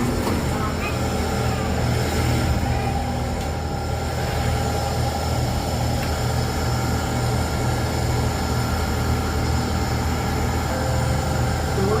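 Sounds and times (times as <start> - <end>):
train cabin hum: 0.0 - 12.0
faint steady high tones: 10.6 - 12.0.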